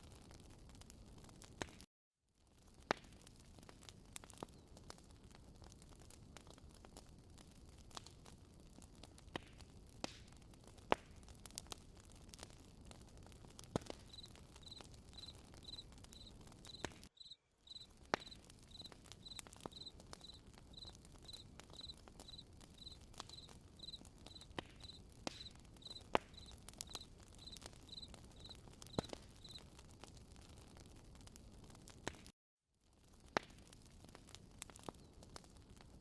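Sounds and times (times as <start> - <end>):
campfire crackling and popping: 0.0 - 32.3, 32.9 - 36.0
cricket chirping: 14.1 - 29.6.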